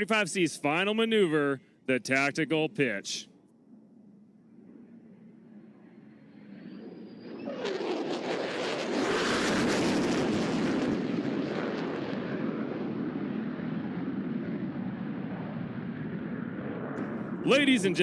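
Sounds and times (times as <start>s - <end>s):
jet engine roar on high-speed pass: 3.7s - 18.0s.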